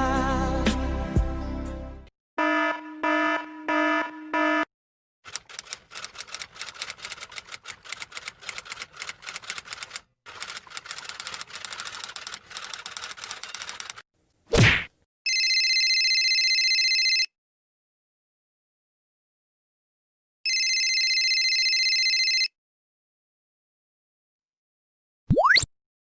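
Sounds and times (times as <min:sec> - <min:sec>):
rapid typing clicks: 0:05.3 - 0:14.0.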